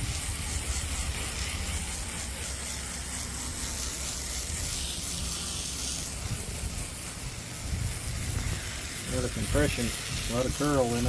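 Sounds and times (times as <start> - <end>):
band sawmill cutting wood: 0.0 - 11.0.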